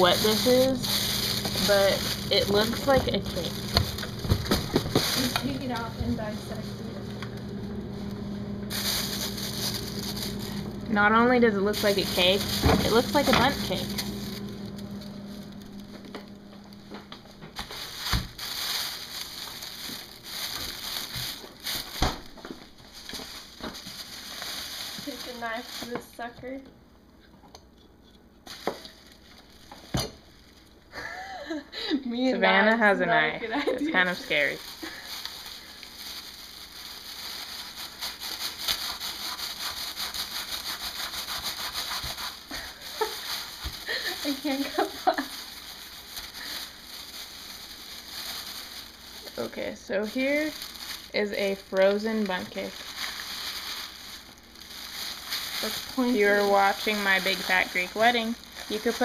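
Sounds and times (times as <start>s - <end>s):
crackling rustling handling noise: 0.0s - 31.1s, 33.6s - 59.0s
knife scraping frozen cake: 37.8s - 44.2s.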